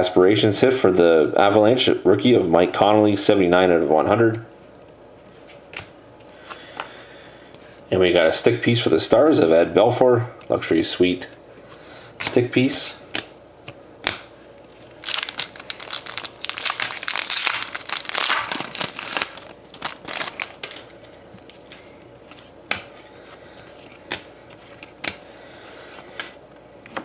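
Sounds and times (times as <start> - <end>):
wrapper tearing and crinkling: 14.7 - 21.7.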